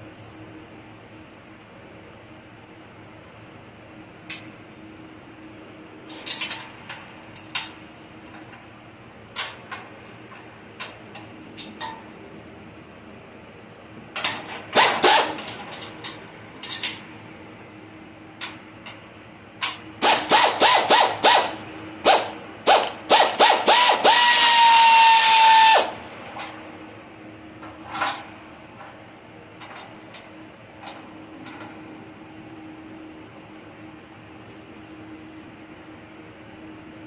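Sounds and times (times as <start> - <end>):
handheld power tool running: 14.8 - 15.5, 20.0 - 26.0.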